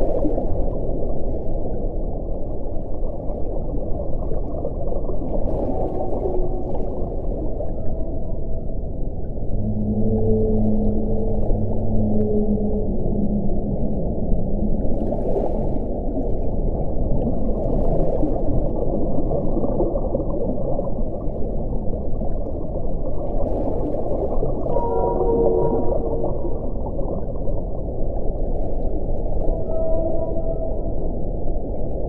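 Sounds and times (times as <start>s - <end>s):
faint wind whistling: 5.1s - 15.0s, 24.3s - 28.3s, 28.9s - 32.0s.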